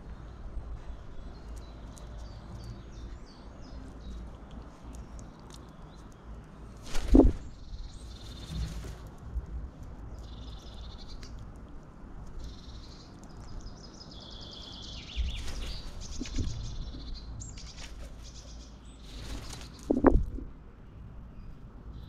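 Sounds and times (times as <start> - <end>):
steady low rumble: 0.0 - 14.5
small birds chirping and trilling: 0.0 - 22.0.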